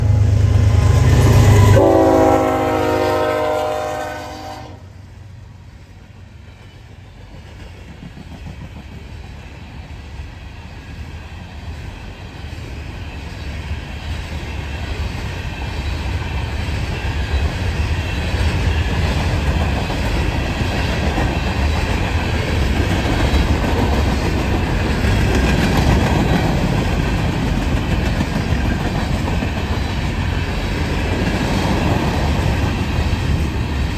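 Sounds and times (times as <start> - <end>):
locomotive air horn: 0.0 - 4.9
train cars rolling with wheel clatter: 5.8 - 33.9.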